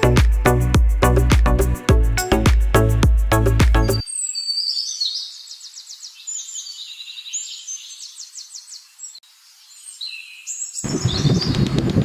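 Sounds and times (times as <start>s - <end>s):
birds singing: 3.8s - 11.9s.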